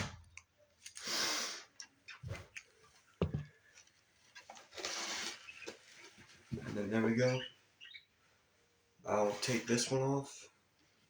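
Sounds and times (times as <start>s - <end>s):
person sniffing: 1.0s - 1.7s
faint handling sounds: 2.1s - 7.2s.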